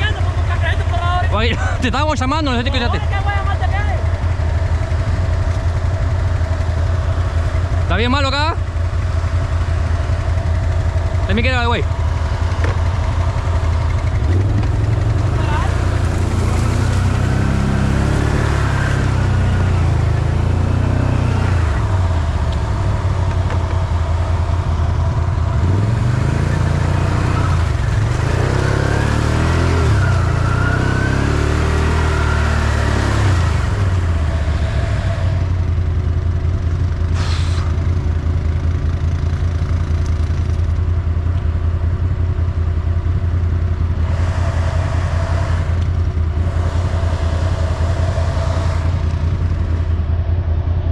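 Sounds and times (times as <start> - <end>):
off-road vehicle engine revving: 0.0 - 41.4, 42.0 - 50.2
short hiss: 37.2 - 37.8.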